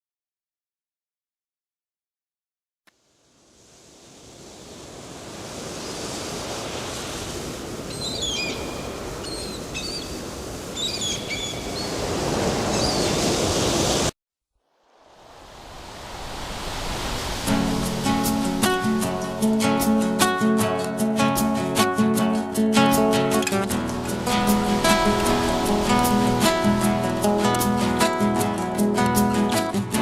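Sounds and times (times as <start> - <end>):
waves washing on sandy beach: 3.0 - 14.1, 14.9 - 29.8
small birds chirping: 7.9 - 12.0, 12.7 - 13.2.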